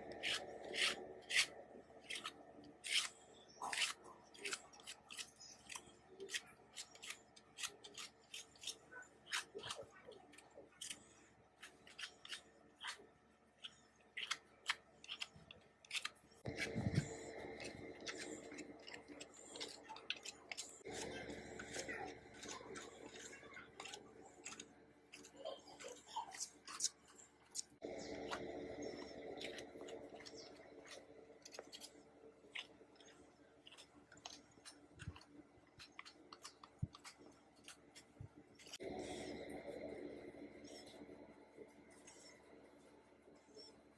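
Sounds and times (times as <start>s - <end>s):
steady rubbing or scraping: 15.2s - 43.9s.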